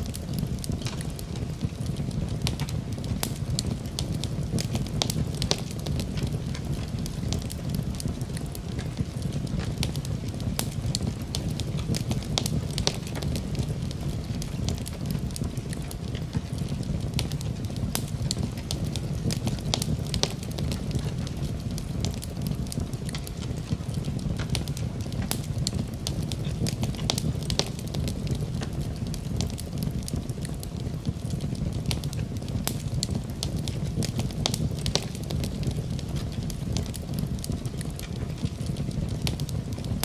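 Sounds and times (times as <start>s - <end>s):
low rumble of fire: 0.0s - 40.0s
wood crackling and popping: 0.0s - 40.0s.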